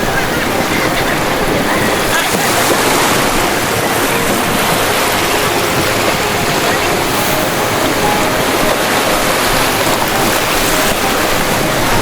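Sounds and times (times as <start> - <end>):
ocean waves breaking: 0.0 - 12.0.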